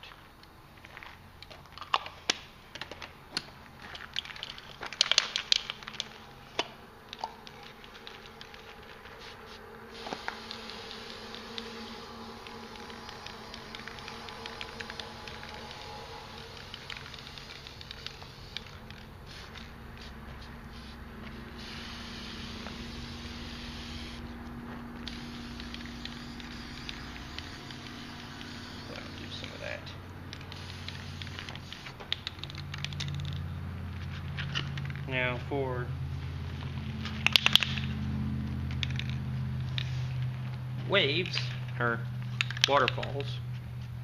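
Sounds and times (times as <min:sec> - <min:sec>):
spray paint can hissing: 0:07.2 - 0:24.3, 0:25.0 - 0:33.1.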